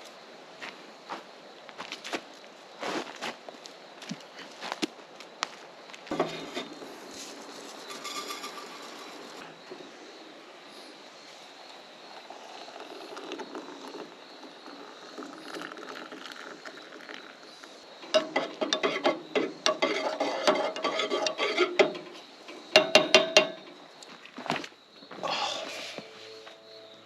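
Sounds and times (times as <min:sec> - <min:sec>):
metal cookware clinking: 0:07.7 - 0:09.4, 0:18.0 - 0:23.8
ringing metal knocks: 0:18.0 - 0:23.8.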